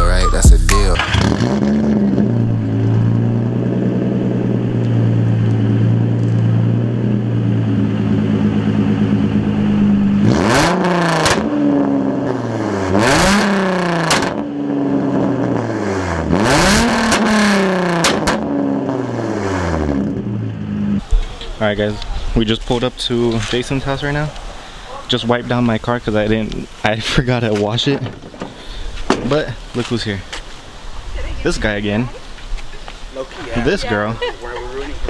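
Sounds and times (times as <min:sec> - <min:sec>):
car engine revving: 0:00.0 - 0:21.1.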